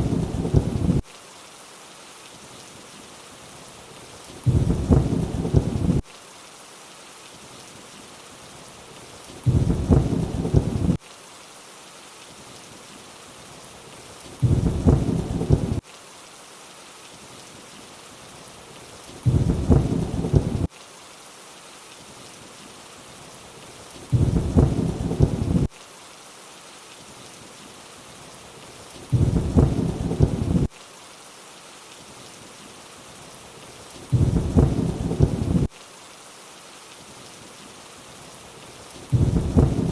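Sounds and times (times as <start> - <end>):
deep thunder rumble: 0.0 - 1.0, 4.5 - 6.0, 9.5 - 11.0, 14.4 - 15.8, 19.3 - 20.7, 24.1 - 25.7, 29.1 - 30.7, 34.1 - 35.7, 39.1 - 39.9
rainfall hiss: 0.0 - 39.9.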